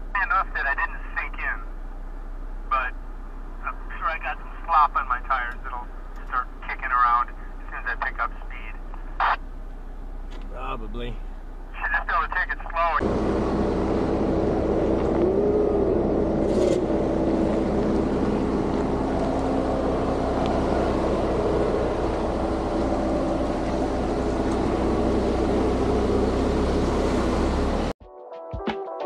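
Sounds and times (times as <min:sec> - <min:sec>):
vehicle engine hum: 0:00.0 - 0:28.0
tyre and road noise: 0:12.8 - 0:28.0.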